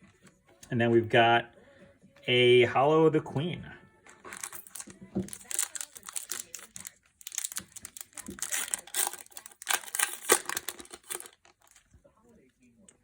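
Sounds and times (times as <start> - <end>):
foil wrapper crinkling: 4.2 - 11.9.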